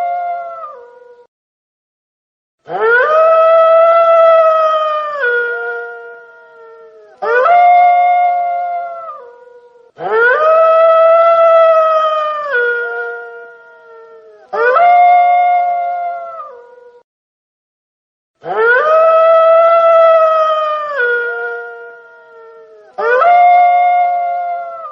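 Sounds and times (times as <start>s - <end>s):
wolf howling: 0.0s - 1.3s, 2.7s - 17.0s, 18.4s - 24.9s.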